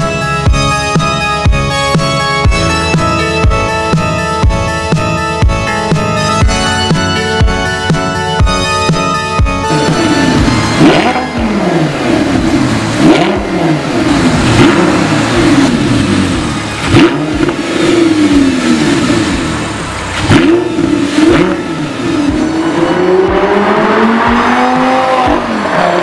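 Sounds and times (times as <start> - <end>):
sports car engine revving: 9.6 - 26.0.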